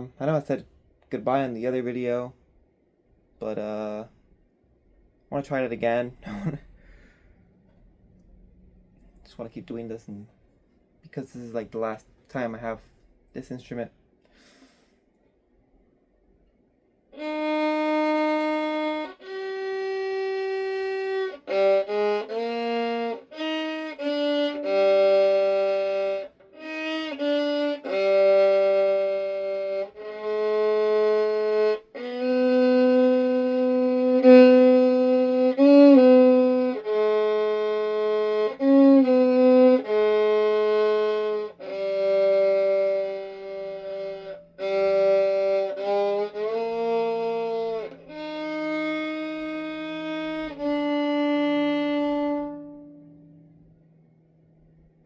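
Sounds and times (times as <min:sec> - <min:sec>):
bowed string instrument melody: 0:17.1 - 0:55.0.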